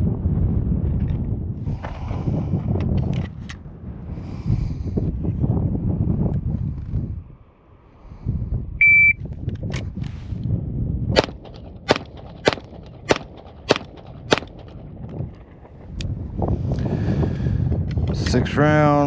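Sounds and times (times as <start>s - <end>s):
shot timer beep: 8.8s - 9.2s
pistol shots: 11.2s - 14.9s.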